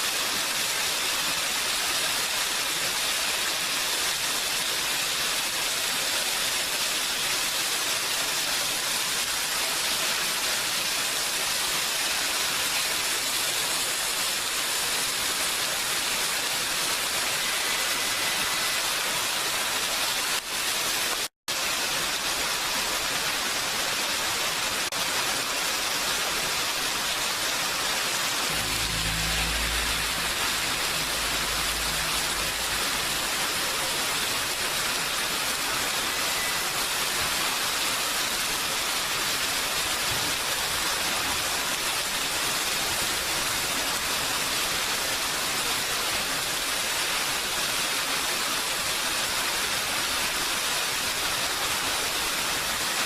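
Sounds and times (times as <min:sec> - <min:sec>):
heavy rainfall: 0:00.0 - 0:53.0
low rumble: 0:28.3 - 0:34.5.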